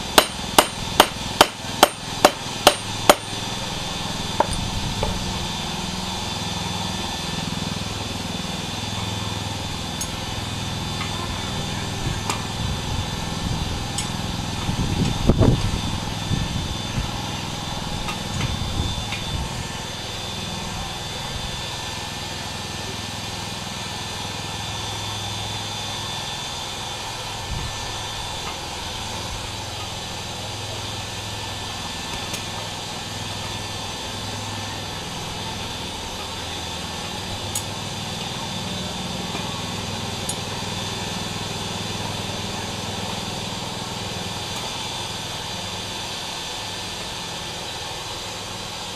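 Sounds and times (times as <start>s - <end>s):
forge humming with high whine: 0.0s - 48.9s.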